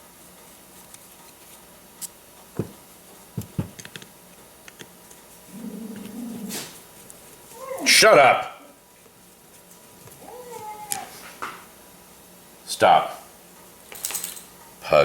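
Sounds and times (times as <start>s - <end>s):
metal knocking on table: 2.6s - 2.8s, 3.4s - 3.8s
dog low vocal noise: 5.5s - 6.8s.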